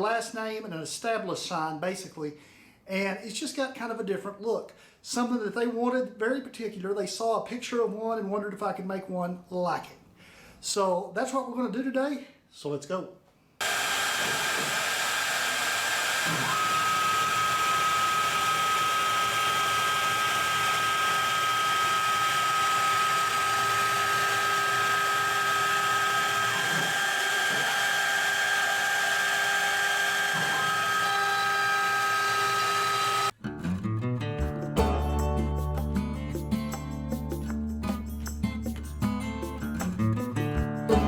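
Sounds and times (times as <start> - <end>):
power tool motor whining: 13.6 - 33.4.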